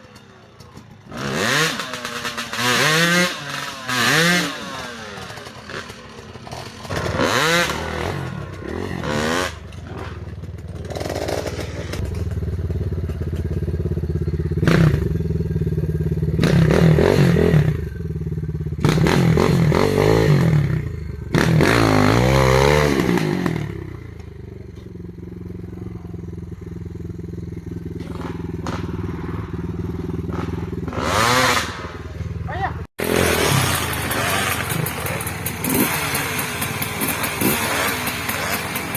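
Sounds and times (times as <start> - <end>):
motorcycle engine revving: 0.0 - 38.9
engine clattering: 5.1 - 19.9, 33.0 - 38.9.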